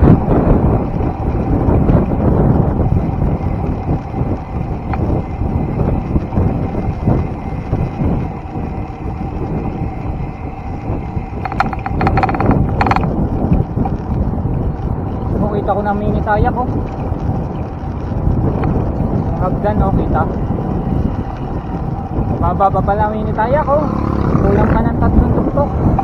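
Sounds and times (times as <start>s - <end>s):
wind buffeting microphone: 0.0s - 26.0s
rapid clicks: 11.4s - 14.0s.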